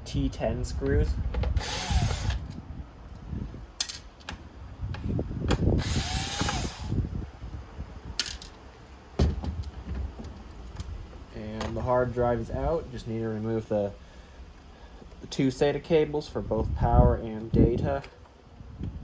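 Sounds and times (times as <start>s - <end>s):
electric screwdriver spinning: 1.6s - 2.5s, 5.8s - 7.0s
clicks and knocks of metal parts: 3.8s - 4.4s, 8.2s - 8.6s.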